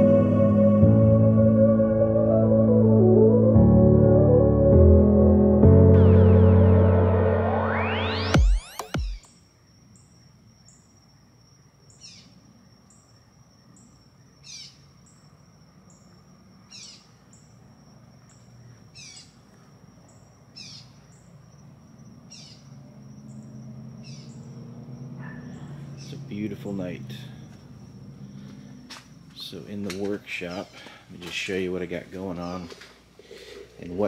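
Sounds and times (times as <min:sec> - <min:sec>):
insect trill: 0:07.8 - 0:34.0
bird calling: 0:18.3 - 0:19.4, 0:20.1 - 0:21.3, 0:22.3 - 0:28.9.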